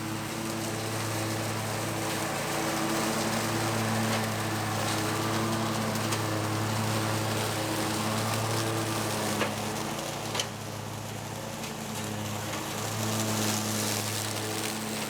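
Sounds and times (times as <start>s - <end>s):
mower blades cutting brush: 0.0s - 15.0s
mower engine running: 0.0s - 15.0s.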